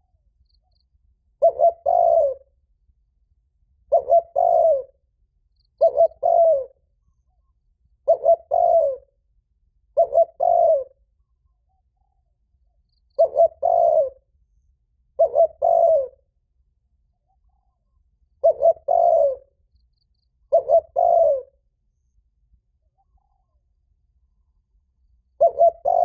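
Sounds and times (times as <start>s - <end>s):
dove cooing: 1.4s - 2.5s, 3.9s - 5.0s, 5.8s - 6.8s, 8.0s - 9.1s, 9.9s - 11.1s, 13.2s - 14.3s, 15.2s - 16.2s, 18.4s - 19.5s, 20.5s - 21.6s, 25.2s - 26.0s.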